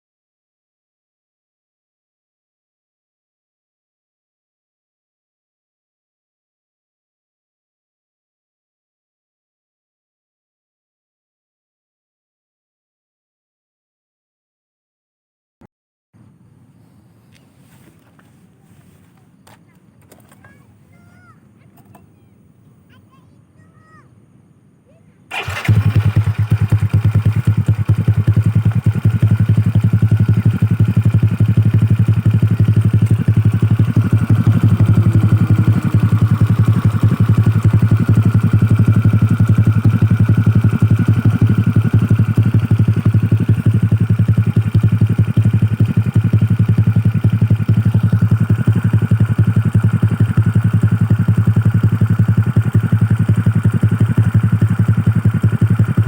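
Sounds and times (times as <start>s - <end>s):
scooter engine starting and idling: 25.3s - 56.0s.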